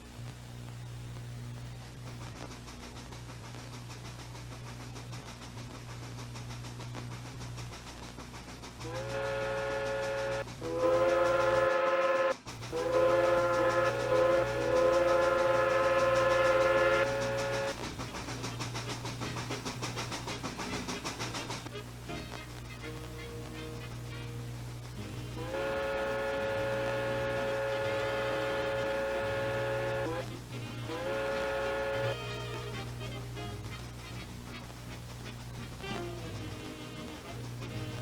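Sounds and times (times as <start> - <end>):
locomotive hum and hiss: 0.0 - 38.0
steam locomotive whistle blowing: 8.8 - 38.0.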